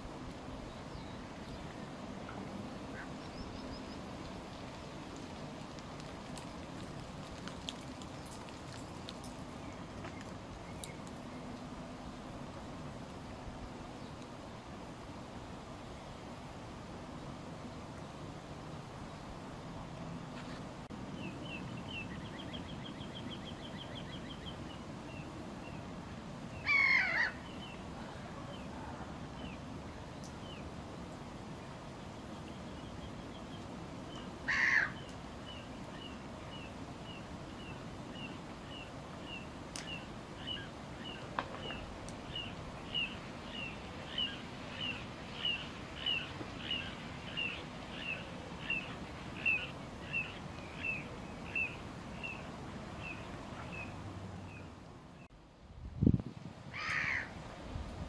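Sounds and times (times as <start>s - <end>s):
crow-like calls: 26.6s - 27.4s, 34.5s - 35.0s, 56.7s - 57.3s.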